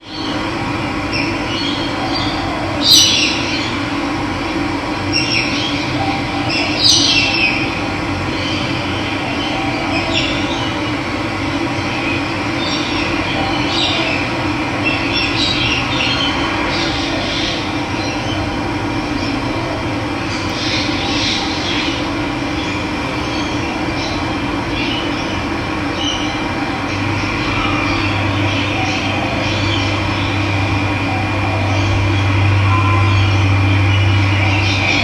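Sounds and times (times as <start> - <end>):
birds chirping: 20.3 - 35.0.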